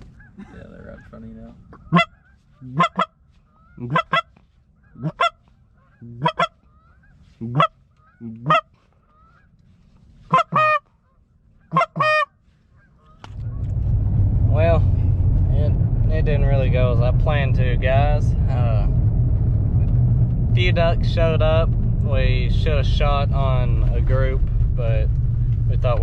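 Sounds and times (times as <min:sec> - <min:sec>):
goose call honks: 0:00.1 - 0:09.5, 0:10.3 - 0:13.4.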